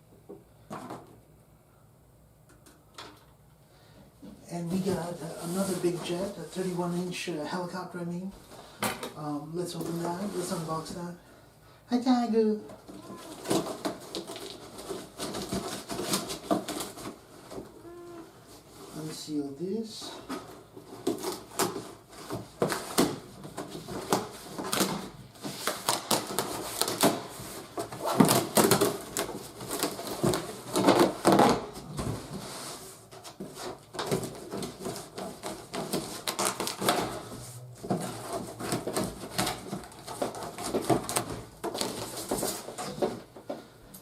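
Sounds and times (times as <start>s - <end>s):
cardboard box rustling: 20.3s - 43.6s.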